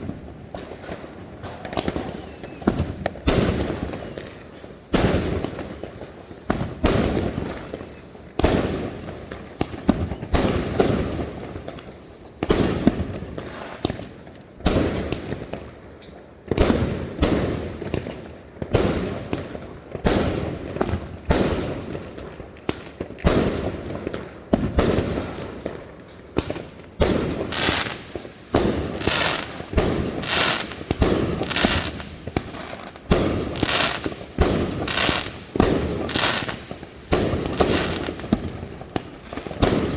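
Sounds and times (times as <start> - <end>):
fireworks bangs: 0.0 - 15.8, 16.4 - 39.9
firework whistles falling in pitch: 1.7 - 13.0, 27.4 - 28.0, 28.9 - 32.1, 33.2 - 34.1, 34.7 - 38.4.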